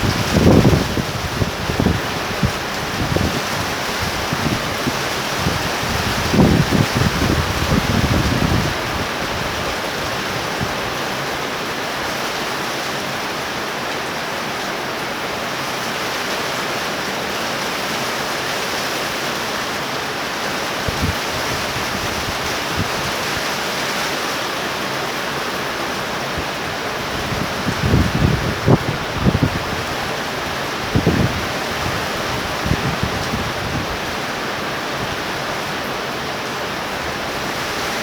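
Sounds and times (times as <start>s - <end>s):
wind buffeting microphone: 0.0s - 11.3s, 20.8s - 23.6s, 26.1s - 35.5s
torrential rain: 0.0s - 38.0s.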